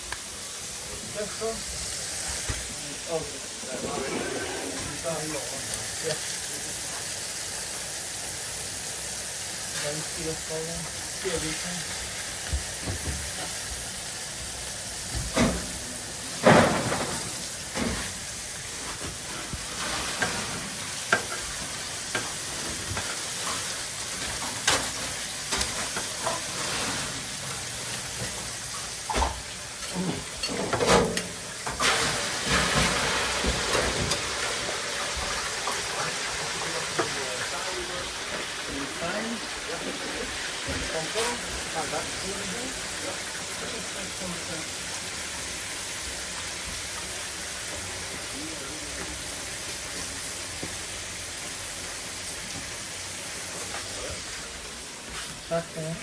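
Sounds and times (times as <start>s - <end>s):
patties sizzling on grill: 0.0s - 56.0s.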